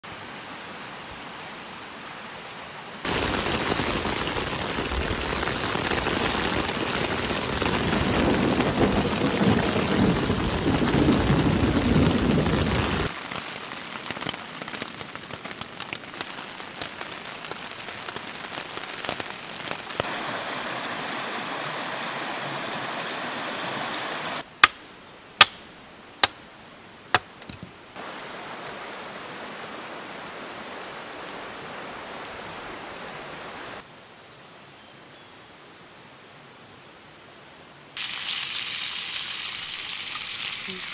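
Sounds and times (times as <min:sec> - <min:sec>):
rain falling in a forest: 0:00.0 - 0:40.9
low rumble of thunder: 0:07.8 - 0:13.1
water drips: 0:38.0 - 0:40.9.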